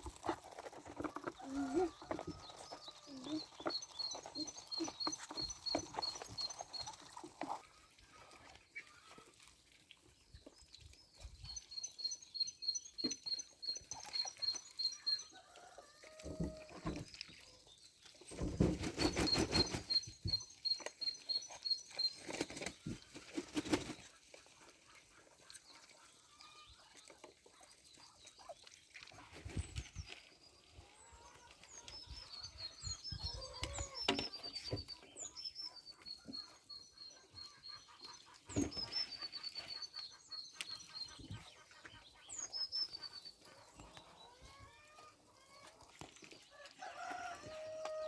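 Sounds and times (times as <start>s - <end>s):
rustling or flapping noise: 18.3s - 20.2s, 22.2s - 24.1s.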